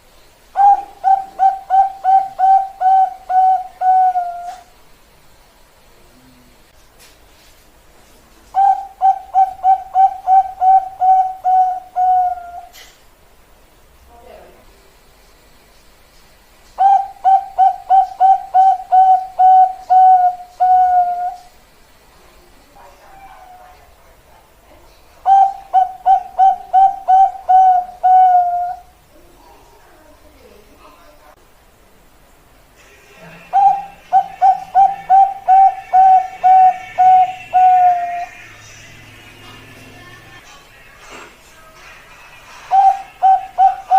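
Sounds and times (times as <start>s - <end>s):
dove cooing: 0.6s - 4.7s, 8.6s - 12.9s, 16.8s - 21.5s, 25.2s - 29.0s, 33.4s - 38.4s, 42.6s - 43.9s.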